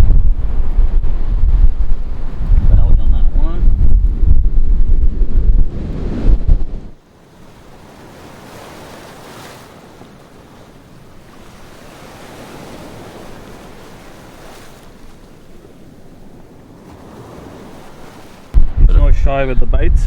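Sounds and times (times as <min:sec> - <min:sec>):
wind on microphone: 0:00.0 - 0:07.0, 0:11.2 - 0:20.0
ocean waves breaking: 0:00.0 - 0:20.0.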